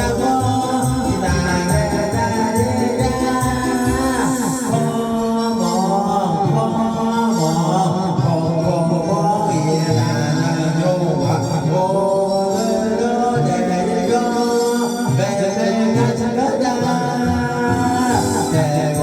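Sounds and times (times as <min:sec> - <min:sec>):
bouncy children's song backing track: 0:00.0 - 0:06.6, 0:14.7 - 0:19.0
person singing: 0:00.0 - 0:19.0.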